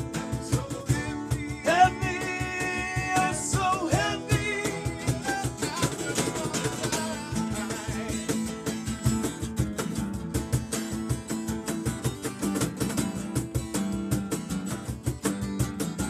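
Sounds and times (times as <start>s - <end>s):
strummed acoustic guitar: 0.0s - 16.0s
person singing: 0.5s - 8.4s.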